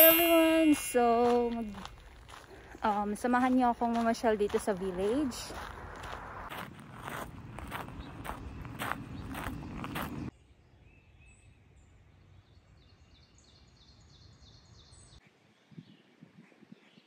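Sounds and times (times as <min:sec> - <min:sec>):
footsteps walking: 0:00.0 - 0:10.3
outdoor ambience: 0:00.0 - 0:17.0.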